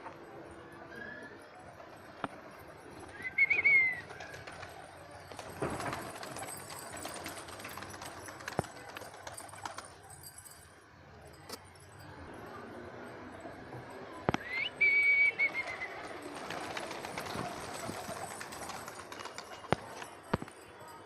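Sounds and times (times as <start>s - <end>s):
wings flapping and scuffling: 2.4s - 9.9s, 15.4s - 20.5s.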